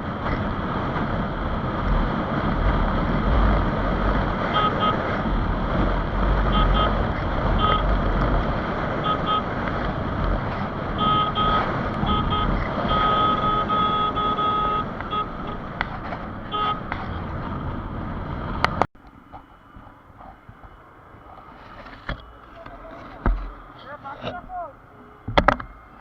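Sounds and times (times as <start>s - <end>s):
wind and road noise: 0.0s - 26.0s
vehicle horn honking: 4.4s - 5.3s, 6.3s - 8.0s, 9.0s - 9.9s, 10.9s - 15.7s, 16.4s - 16.9s.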